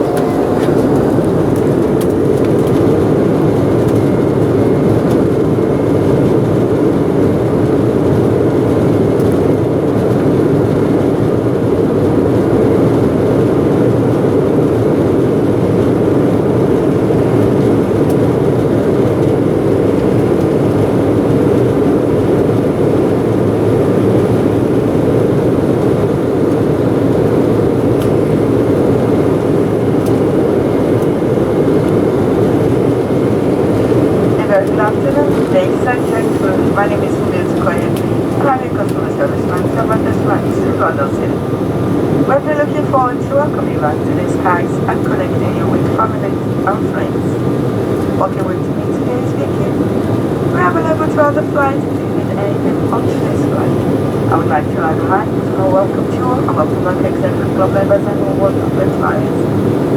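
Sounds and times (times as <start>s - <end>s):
airliner cabin roar in flight: 0.0s - 59.9s.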